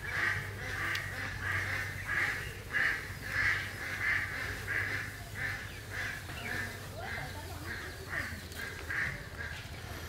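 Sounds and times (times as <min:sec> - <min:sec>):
bird harsh calls: 0:00.0 - 0:10.0.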